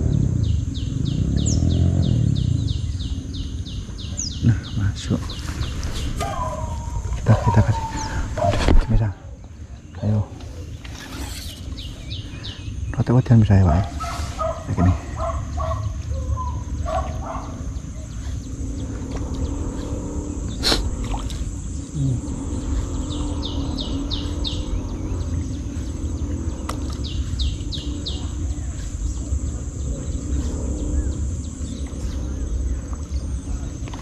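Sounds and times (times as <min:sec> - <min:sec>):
bird with downward-sliding notes: 0:00.0 - 0:34.0
low rumble: 0:00.0 - 0:34.0.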